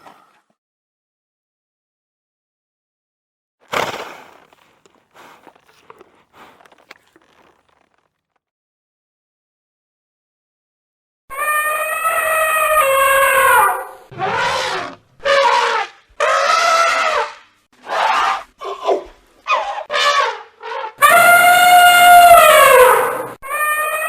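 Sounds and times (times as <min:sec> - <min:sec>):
animal brassy calls: 0:11.3 - 0:24.0.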